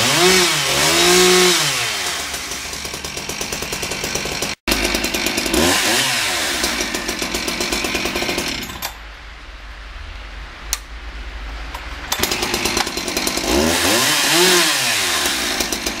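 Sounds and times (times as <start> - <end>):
chainsaw revving: 0.0 - 8.9, 12.1 - 16.0
chainsaw idling: 0.0 - 9.0, 12.1 - 16.0.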